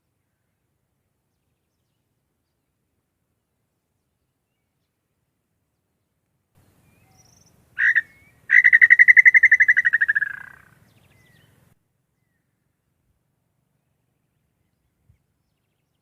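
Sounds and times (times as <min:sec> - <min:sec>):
bird trilling call: 0:06.9 - 0:11.6.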